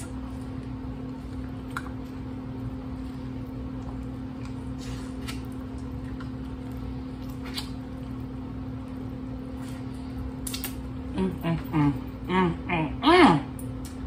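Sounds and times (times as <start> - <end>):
steady low hum: 0.0 - 14.0
kernel crunches: 7.2 - 7.8.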